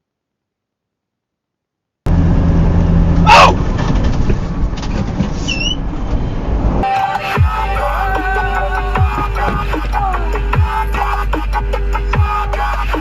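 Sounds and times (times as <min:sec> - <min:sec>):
road noise: 0:02.1 - 0:13.0
vehicle engine: 0:02.1 - 0:13.0
electronic music with a beat: 0:06.8 - 0:13.0.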